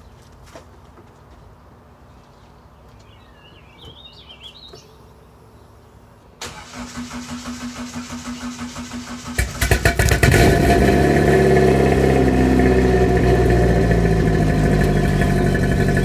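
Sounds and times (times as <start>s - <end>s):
bird chirping: 2.0s - 6.4s, 14.7s - 16.0s
car engine starter cranking: 6.4s - 10.9s.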